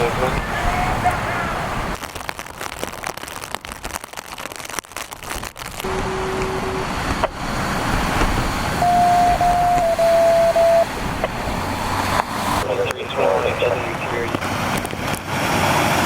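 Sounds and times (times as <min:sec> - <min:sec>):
vehicles on wet road: 0:00.0 - 0:16.0
steady electronic tones: 0:05.9 - 0:08.1, 0:08.7 - 0:11.8.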